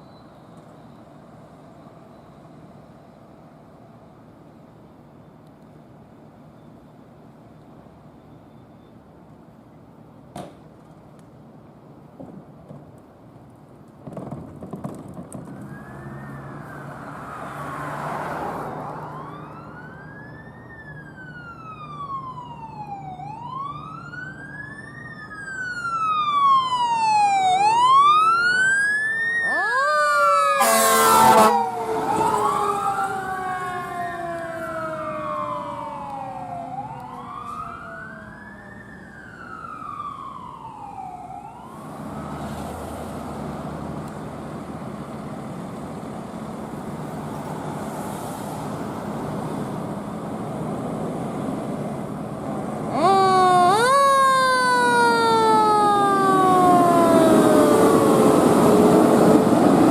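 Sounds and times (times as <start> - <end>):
second siren sliding down: 15.4 - 43.0, 52.9 - 59.9
emergency siren wailing: 15.4 - 43.2, 52.6 - 59.9
loud horn blast: 30.6 - 31.7.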